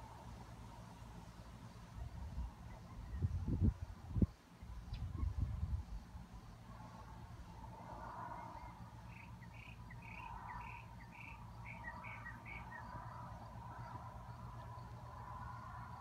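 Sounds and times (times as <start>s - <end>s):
faint outdoor background noise: 0.0s - 16.0s.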